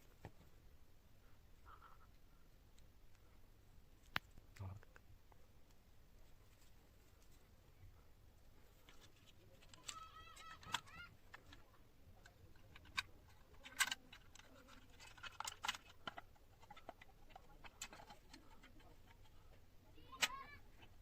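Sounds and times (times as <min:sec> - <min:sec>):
clicks and taps of small parts: 0:08.9 - 0:19.5, 0:20.1 - 0:21.0.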